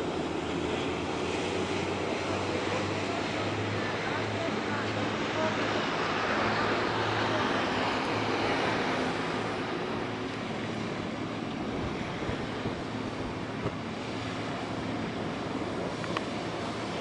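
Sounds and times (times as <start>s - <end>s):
boat engines humming: 0.0s - 17.0s
water noise: 0.0s - 17.0s
wind on microphone: 5.9s - 17.0s.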